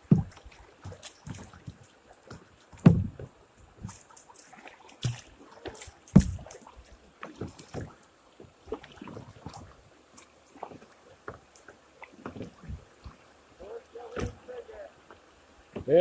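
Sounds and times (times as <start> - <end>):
paddle splashing in water: 0.0 - 16.0
knocks and thumps: 2.8 - 3.4, 6.1 - 6.5.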